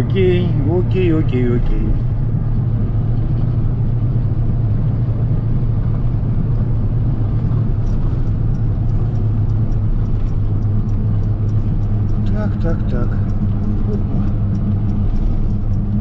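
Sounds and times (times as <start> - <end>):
car engine rumble: 0.0 - 16.0
road noise: 0.0 - 16.0
faint ticks: 7.3 - 16.0.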